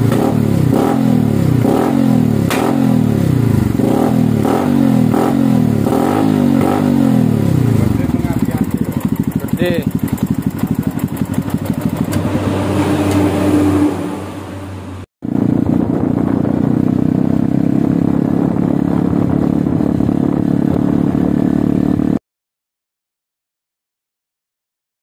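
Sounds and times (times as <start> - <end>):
engine revving: 0.0 - 22.2
motorcycle engine idling: 6.7 - 12.4.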